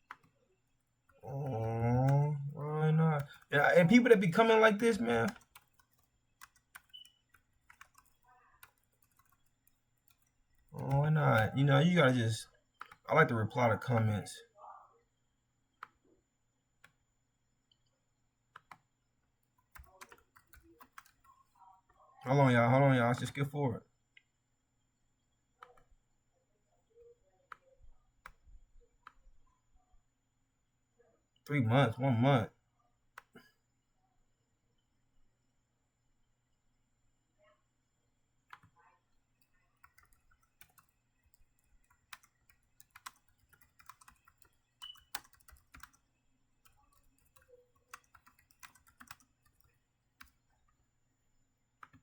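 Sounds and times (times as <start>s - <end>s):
computer keyboard typing: 0.0s - 14.3s, 18.6s - 18.9s, 19.5s - 21.4s, 39.4s - 50.5s.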